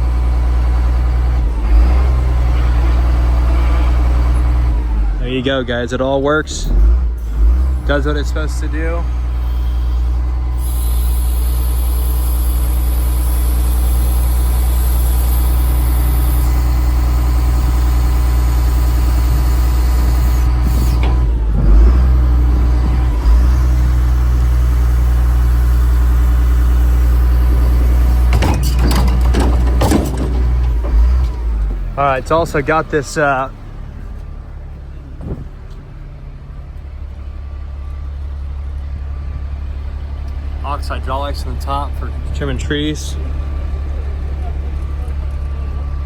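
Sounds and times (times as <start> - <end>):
diesel engine idling: 0.0 - 46.0
loud knocks: 27.6 - 31.3, 35.2 - 35.7.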